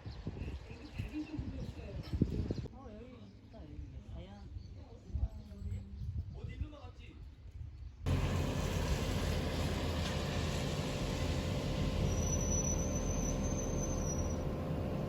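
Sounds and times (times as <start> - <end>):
vehicle engine rumbling: 8.1 - 15.0.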